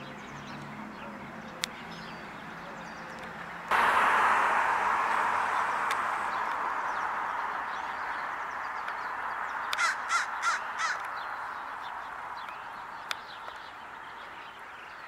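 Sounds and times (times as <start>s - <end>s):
steady background hiss: 3.7s - 13.9s
bird harsh calls: 5.4s - 13.5s.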